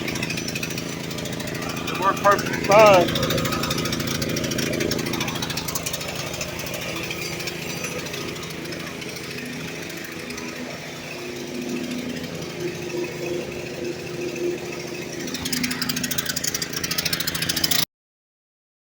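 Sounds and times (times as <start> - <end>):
generator engine running: 0.0 - 17.8.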